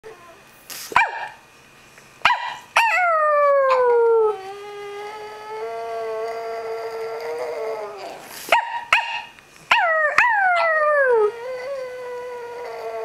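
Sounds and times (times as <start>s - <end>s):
dog yelping: 2.3s - 3.9s, 8.0s - 11.3s
dog howling: 2.8s - 8.2s, 9.7s - 13.0s.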